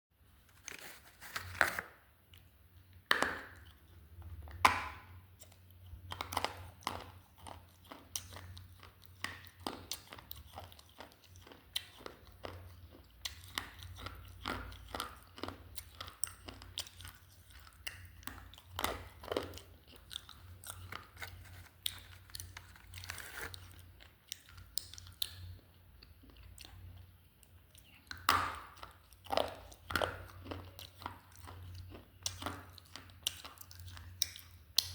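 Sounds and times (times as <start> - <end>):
gritty chewing crunch: 5.4 - 27.0.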